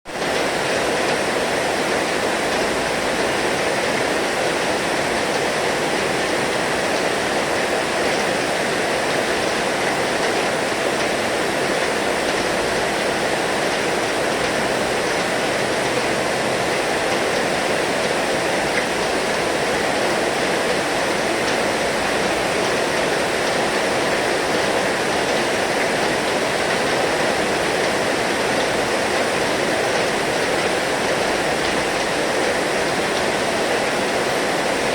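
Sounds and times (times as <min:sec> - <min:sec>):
heavy rain falling: 0:00.1 - 0:34.9.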